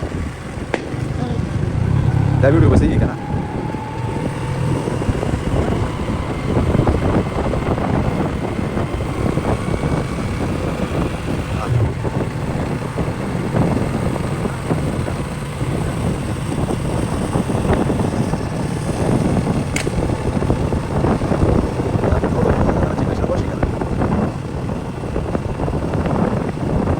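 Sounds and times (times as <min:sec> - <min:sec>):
motorcycle engine: 0:00.0 - 0:26.9
road noise: 0:00.0 - 0:26.9
wind rumble on microphone: 0:00.0 - 0:26.9.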